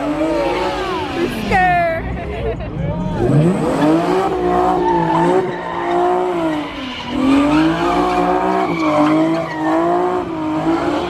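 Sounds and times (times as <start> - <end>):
car engine at high revs: 0.0 - 11.0
tyres squealing: 3.2 - 10.2.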